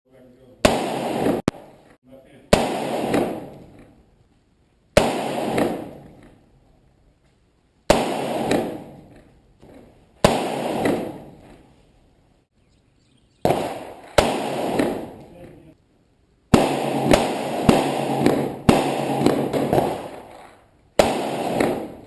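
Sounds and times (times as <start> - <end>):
rifle shots with echo: 0.6 - 1.8, 2.5 - 3.9, 5.0 - 6.4, 7.9 - 9.1, 10.2 - 11.4, 13.4 - 15.4, 16.5 - 22.0.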